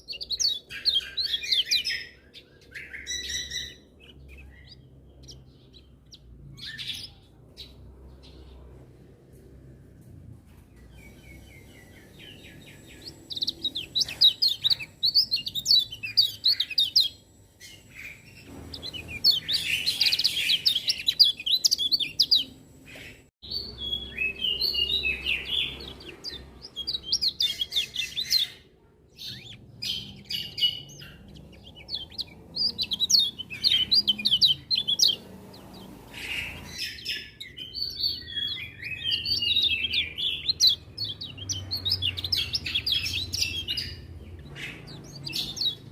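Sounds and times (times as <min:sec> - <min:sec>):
white-eye twittering chirps: 0:11.4 - 0:23.3.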